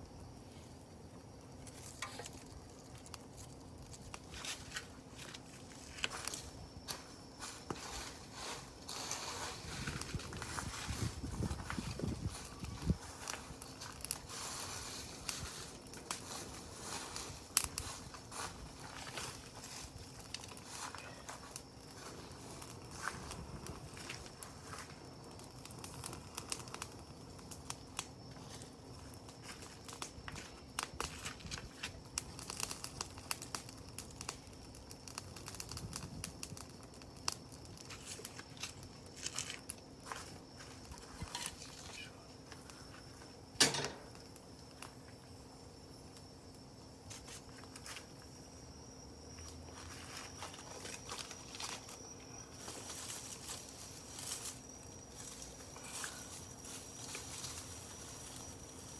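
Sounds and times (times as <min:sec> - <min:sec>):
campfire crackling: 0:00.0 - 0:58.9
loud fire pop: 0:43.6 - 0:44.2.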